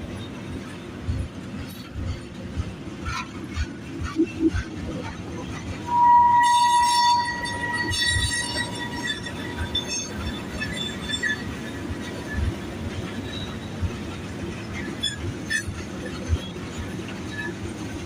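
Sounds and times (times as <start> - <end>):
train cars rumbling past: 0.0 - 18.0
metallic wheel squeal: 5.6 - 14.0.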